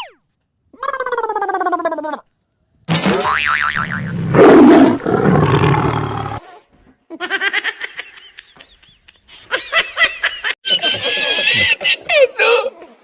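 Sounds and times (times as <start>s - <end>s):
tiger roar: 4.1s - 6.4s.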